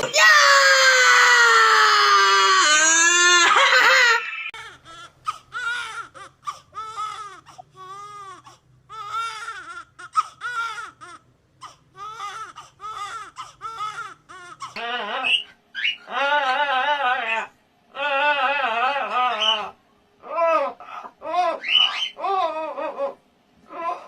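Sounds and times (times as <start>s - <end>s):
loud wailing cry: 0.0s - 4.6s
short arching crying calls: 21.6s - 22.2s.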